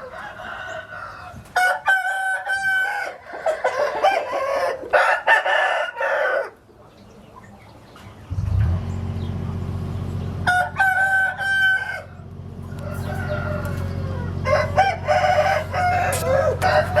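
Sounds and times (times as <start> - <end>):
rooster crowing: 0.0 - 6.6, 10.4 - 17.0.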